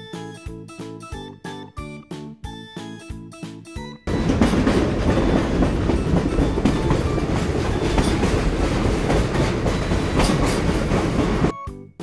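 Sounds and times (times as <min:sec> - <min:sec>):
train rumbling on rails: 0:04.1 - 0:11.5
wheels clickety-clack: 0:04.1 - 0:11.5.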